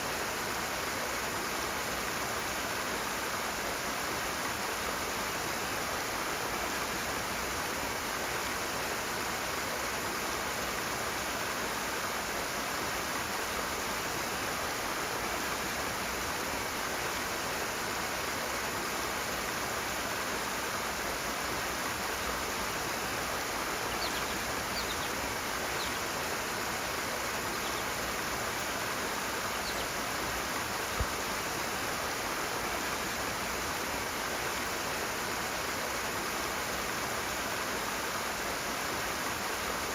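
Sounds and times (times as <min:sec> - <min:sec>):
stream water rushing: 0:00.0 - 0:39.9
faint high chirps: 0:23.8 - 0:26.8.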